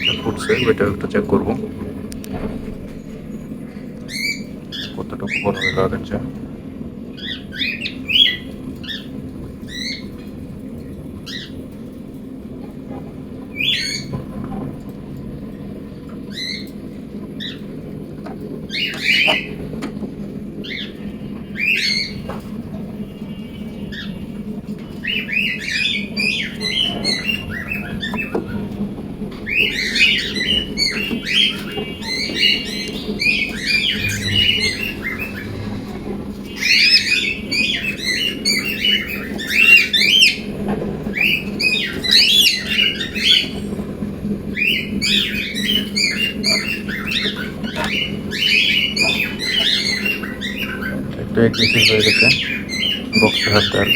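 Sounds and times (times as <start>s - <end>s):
cockatiels squawking: 0.0s - 2.9s, 3.7s - 11.7s, 13.5s - 14.3s, 16.2s - 22.6s, 23.6s - 53.9s
low hum: 32.0s - 37.7s.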